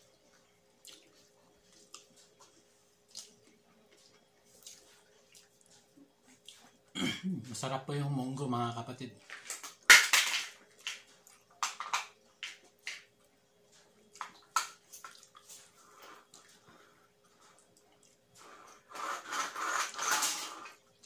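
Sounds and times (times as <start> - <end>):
wet chewing: 0.3 - 6.9, 13.8 - 18.8.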